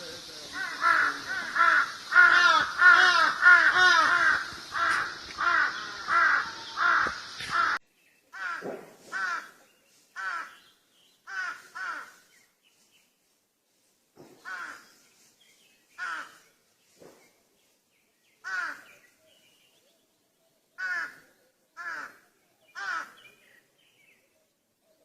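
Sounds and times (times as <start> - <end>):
steady hiss: 0.0 - 7.8
crows cawing: 0.5 - 9.6, 10.2 - 10.7, 11.3 - 12.3, 14.4 - 14.9, 16.0 - 16.4, 18.4 - 19.0, 20.8 - 23.2.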